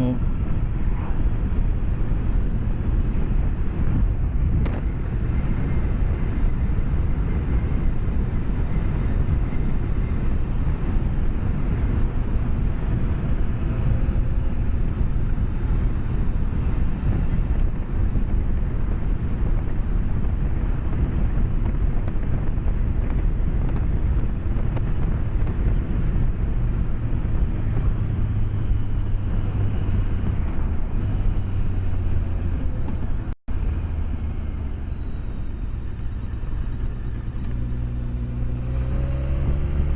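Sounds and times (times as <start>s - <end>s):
motorcycle engine cruising: 0.0s - 39.9s
road rumble: 0.0s - 39.9s
wind noise: 0.0s - 39.9s.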